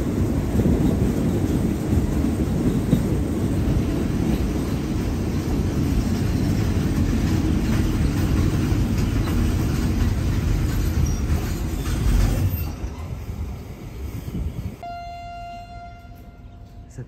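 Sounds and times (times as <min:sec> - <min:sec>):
rail clicks: 0:00.0 - 0:13.4
train wheels rumbling: 0:00.0 - 0:14.8.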